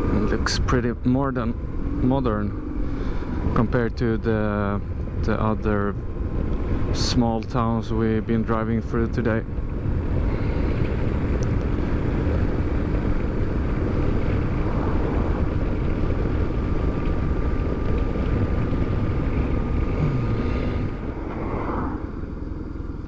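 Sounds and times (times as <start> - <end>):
motorcycle engine riding: 0.0 - 23.0
rushing air: 9.9 - 23.0.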